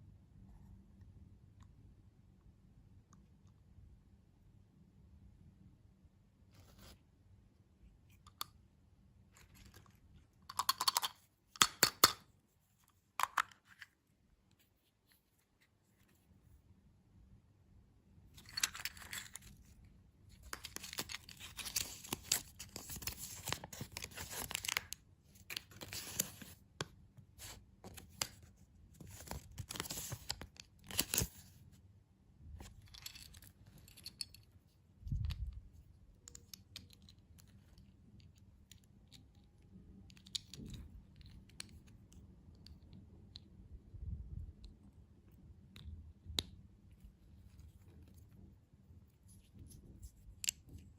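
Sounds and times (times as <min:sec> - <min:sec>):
candy wrapper tearing and crinkling: 0:18.4 - 0:19.6.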